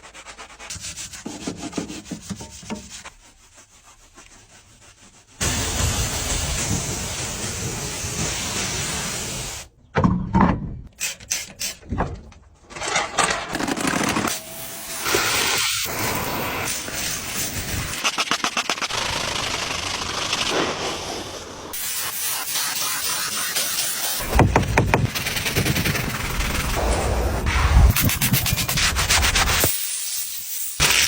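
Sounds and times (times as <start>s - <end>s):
pressure washer spray hissing: 5.4s - 9.7s, 14.4s - 17.9s, 19.0s - 26.8s, 27.9s - 31.0s.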